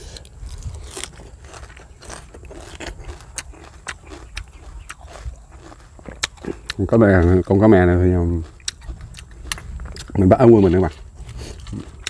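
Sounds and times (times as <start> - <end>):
person chewing crispy fish: 0.0 - 12.0.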